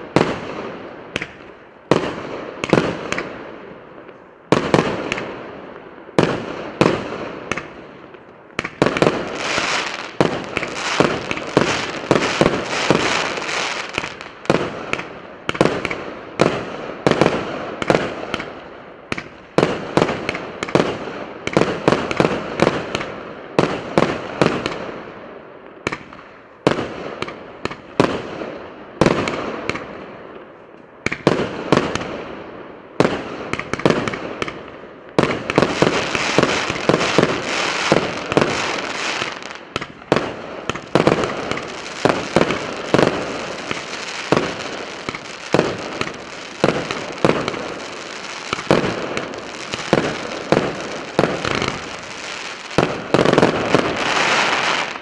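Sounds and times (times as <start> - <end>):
firework shots banging: 8.6 - 18.5, 33.0 - 55.0.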